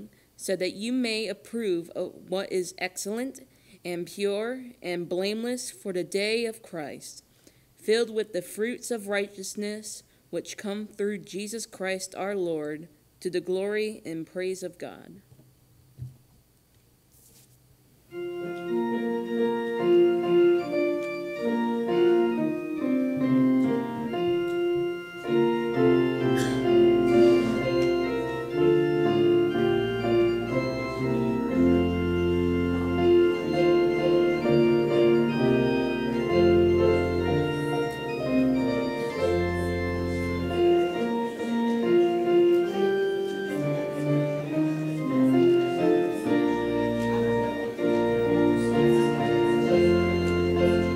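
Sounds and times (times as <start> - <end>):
deep organ bass pedal notes: 18.1 - 50.9
organ playing held chords: 18.1 - 50.9.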